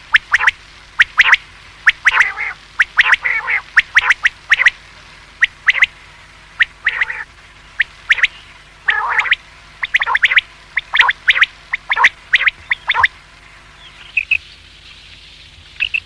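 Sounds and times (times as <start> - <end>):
quail calling: 0.0 - 4.8, 5.4 - 6.0, 6.6 - 13.2.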